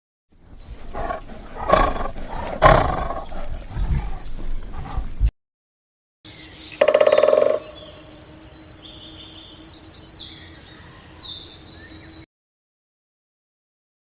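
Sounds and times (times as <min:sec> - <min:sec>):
bird singing trilled phrases: 0:06.3 - 0:12.2.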